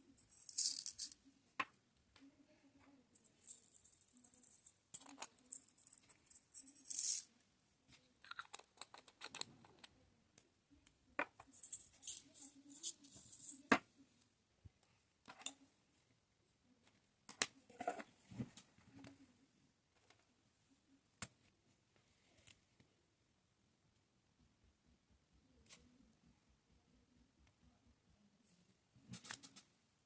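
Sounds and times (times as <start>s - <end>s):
plastic beads rattling in tray: 0.2s - 1.2s, 3.2s - 7.3s, 11.5s - 13.6s.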